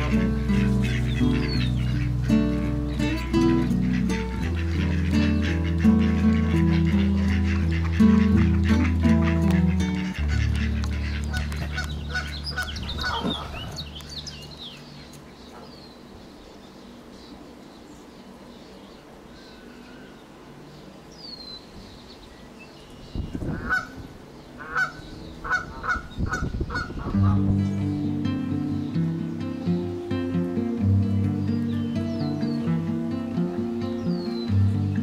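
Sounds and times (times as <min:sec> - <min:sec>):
background music: 0:00.0 - 0:13.4, 0:27.2 - 0:35.0
guitar music: 0:00.0 - 0:15.0, 0:27.0 - 0:35.0
loud bird calls: 0:00.0 - 0:29.5, 0:31.1 - 0:35.0
high bird chirps: 0:11.0 - 0:18.0.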